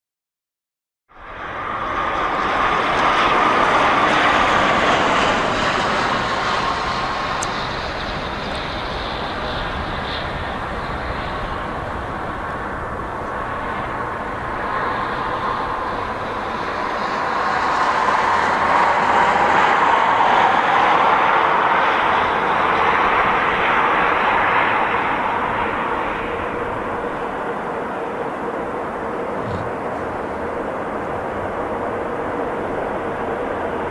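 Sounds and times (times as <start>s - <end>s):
freight train rumbling past: 11.8s - 33.9s
faint locomotive hum: 26.2s - 33.9s.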